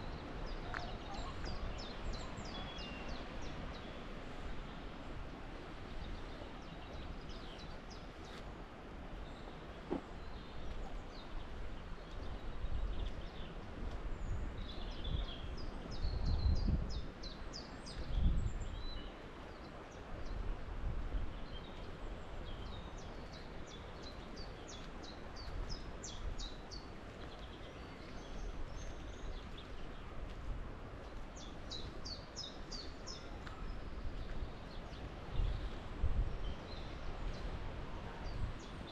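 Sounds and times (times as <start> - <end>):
songbirds chirping: 0.0 - 38.9
wind gusting over microphone: 11.4 - 19.1, 28.3 - 38.9.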